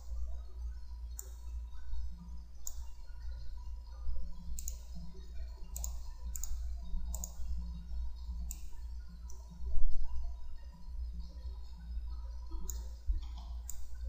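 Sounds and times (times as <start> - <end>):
low electrical hum: 0.0 - 14.0
computer mouse clicking: 1.1 - 1.5, 2.6 - 2.9, 4.4 - 5.0, 5.6 - 7.8, 8.4 - 9.5, 12.5 - 14.0.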